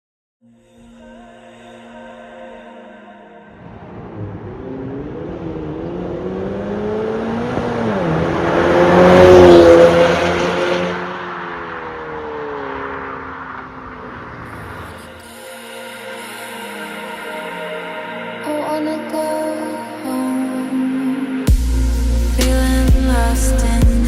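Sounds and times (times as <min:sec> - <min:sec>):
car engine exhaust revving: 0:03.5 - 0:15.0.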